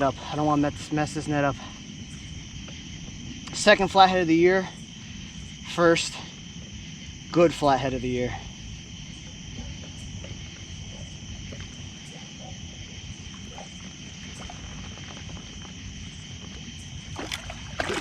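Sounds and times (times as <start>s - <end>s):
high insect hum: 0.0s - 18.0s
water sloshing against kayak: 16.6s - 18.0s
sharp water splash: 17.1s - 18.0s.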